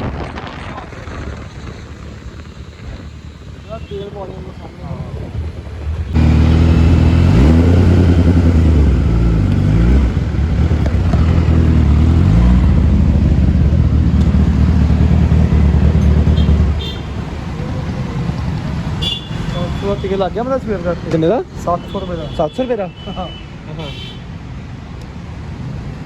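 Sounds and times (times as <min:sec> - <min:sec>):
motorcycle engine running loud: 0:00.9 - 0:20.0.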